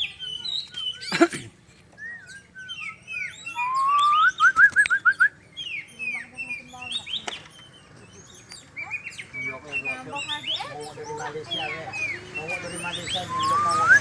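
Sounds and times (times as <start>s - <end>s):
bird chirps: 0.0s - 14.0s
bird rising whistle: 2.0s - 5.4s, 13.3s - 14.0s.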